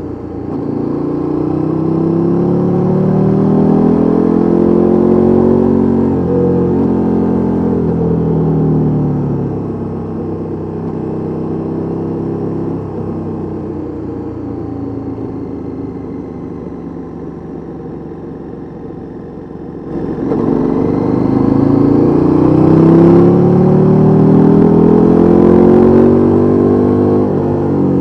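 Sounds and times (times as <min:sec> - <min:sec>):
motorcycle engine revving: 0:00.0 - 0:13.4, 0:19.4 - 0:28.0.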